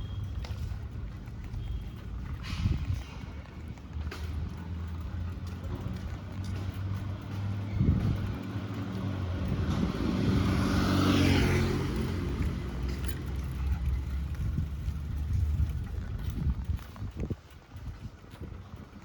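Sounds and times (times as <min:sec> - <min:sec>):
low engine hum: 0:00.0 - 0:19.0
vehicle passing close by: 0:05.7 - 0:15.5.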